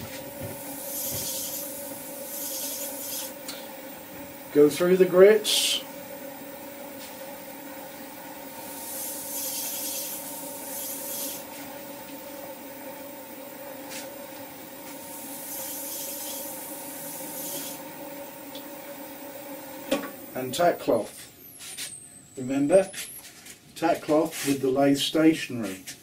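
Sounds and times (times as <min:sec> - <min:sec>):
sandpaper hissing on spinning wood: 0:00.0 - 0:03.4, 0:08.6 - 0:11.8, 0:13.8 - 0:14.3, 0:14.9 - 0:17.9
lathe motor hum: 0:00.0 - 0:21.0.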